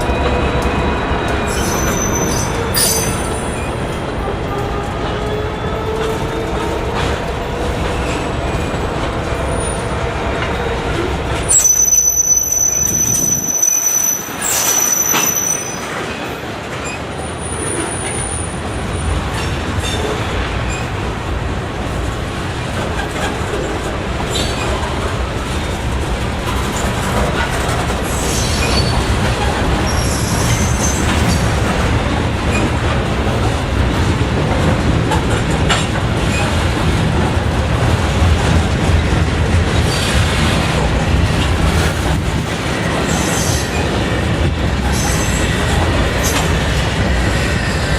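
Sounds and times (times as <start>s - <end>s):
train wheels rumbling on rails: 0.0s - 47.9s
high-pitched wheel squeal: 11.5s - 15.9s.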